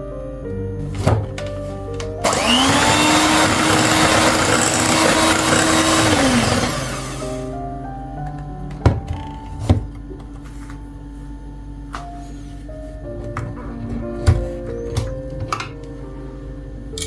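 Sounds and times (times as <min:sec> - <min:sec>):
kitchen appliance motor whirring: 0:02.2 - 0:07.4.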